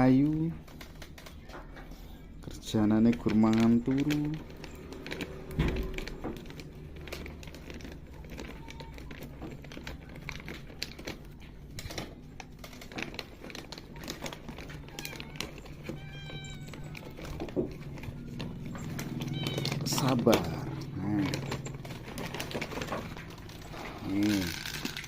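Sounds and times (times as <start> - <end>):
kitten meowing: 14.7 - 17.3, 19.0 - 20.8.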